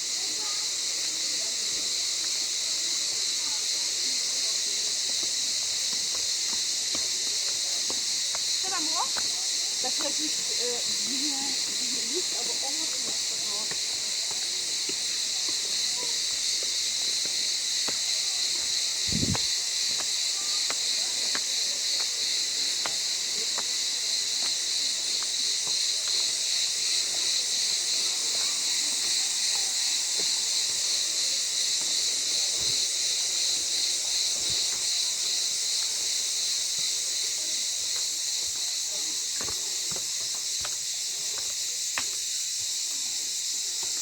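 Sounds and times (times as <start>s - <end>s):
cicadas chirring: 0.0s - 44.0s
short low thump: 19.1s - 19.5s.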